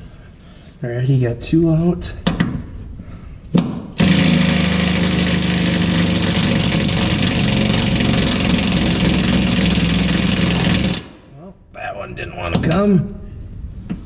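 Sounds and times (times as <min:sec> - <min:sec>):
impact wrench running: 0:03.9 - 0:11.2.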